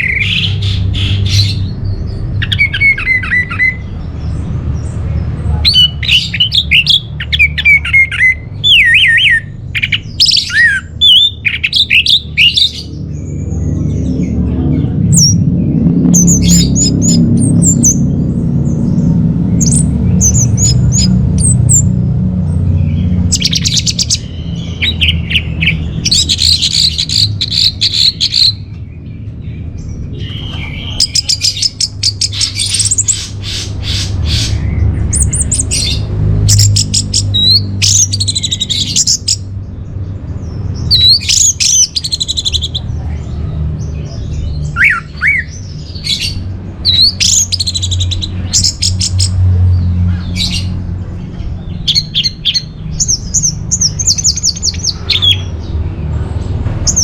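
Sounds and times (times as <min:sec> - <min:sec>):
low background rumble: 0:00.0 - 0:57.0
thrush singing: 0:19.2 - 0:28.7, 0:30.0 - 0:39.4.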